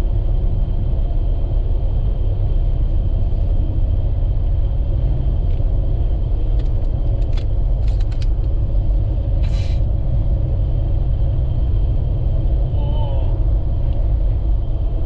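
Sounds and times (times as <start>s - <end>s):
vehicle rumbling: 0.0s - 15.0s
short hiss: 9.4s - 9.9s.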